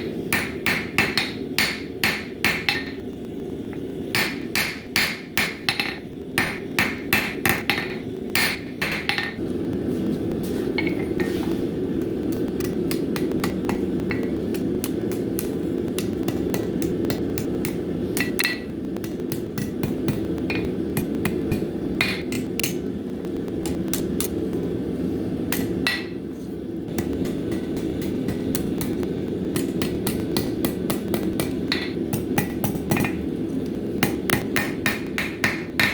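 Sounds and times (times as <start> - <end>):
hammer striking steel on anvil: 0.0 - 3.0, 4.1 - 9.4, 12.6 - 22.8, 25.5 - 26.2, 27.0 - 33.2, 34.0 - 35.9.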